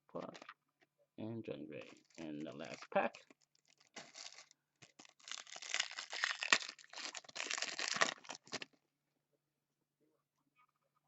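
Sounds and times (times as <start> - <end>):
foil pack tearing and crinkling: 3.6 - 8.7.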